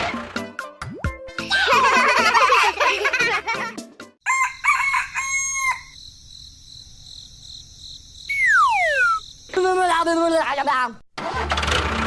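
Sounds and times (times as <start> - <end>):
rooster crowing: 4.2 - 6.0
whistle falling in pitch: 8.3 - 9.2.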